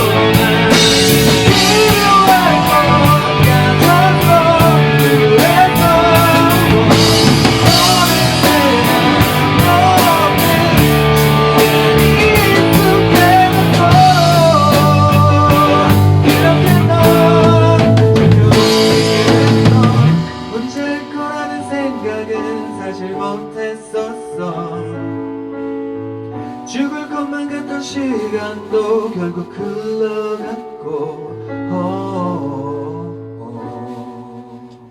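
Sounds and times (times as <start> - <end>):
rock band playing: 0.0 - 23.1.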